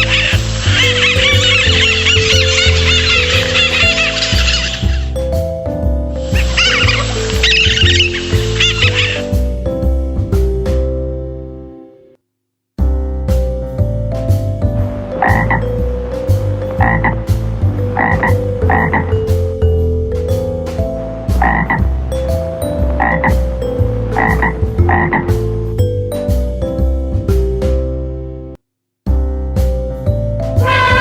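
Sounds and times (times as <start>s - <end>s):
frog croaking: 0.0s - 5.2s, 6.2s - 9.4s, 14.8s - 19.5s, 20.8s - 25.6s
children's background music: 0.0s - 12.1s, 12.8s - 31.0s.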